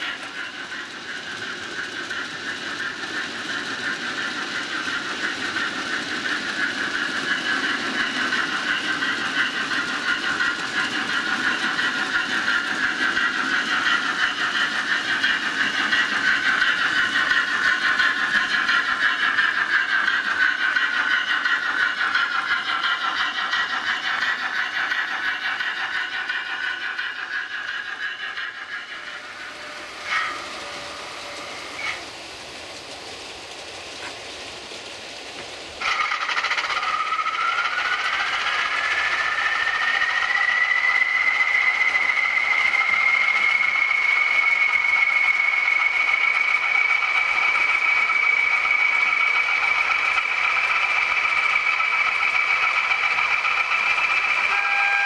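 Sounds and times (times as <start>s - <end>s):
model train whirring: 0.0s - 55.0s.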